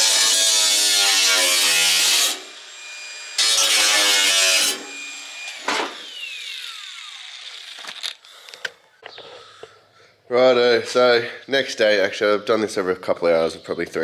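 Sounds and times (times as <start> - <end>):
power tool cutting steel pipe: 0.0 - 7.9.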